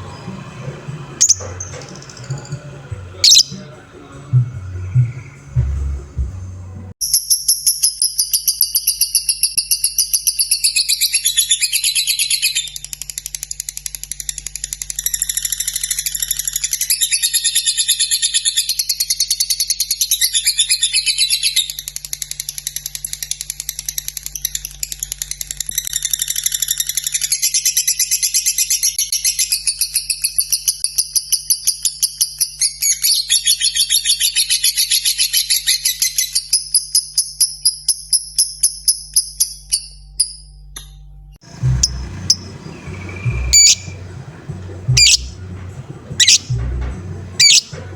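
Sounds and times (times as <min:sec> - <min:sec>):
lovebird chattering trill: 0:01.2 - 0:02.5, 0:03.2 - 0:03.7, 0:41.5 - 0:45.5, 0:46.1 - 0:47.8.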